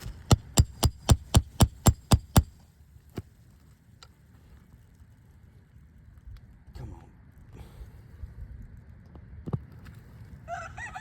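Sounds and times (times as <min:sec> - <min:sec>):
hammer blows on roof: 0:00.0 - 0:02.6.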